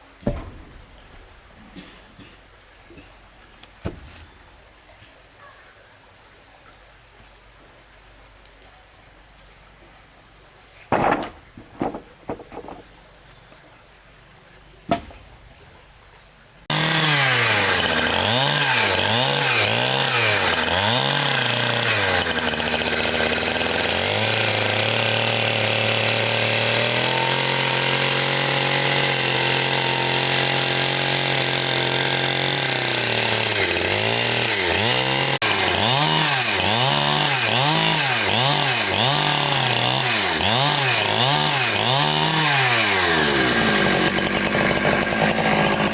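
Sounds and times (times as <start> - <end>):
sharp wooden knocks: 0.2 - 1.8, 3.8 - 4.4, 10.9 - 13.0, 14.9 - 15.5
chainsaw revving: 16.7 - 45.9.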